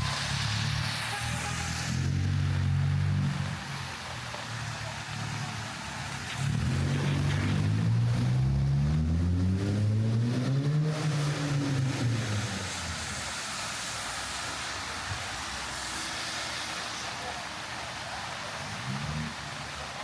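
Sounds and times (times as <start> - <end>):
rain on the street: 0.0 - 20.0
vehicle engine passing by: 6.2 - 13.5.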